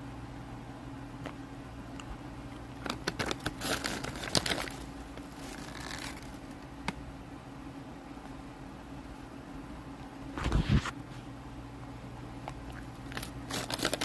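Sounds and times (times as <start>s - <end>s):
steady low hum: 0.0s - 14.0s
crinkling and crackling: 2.5s - 7.0s, 12.4s - 14.0s.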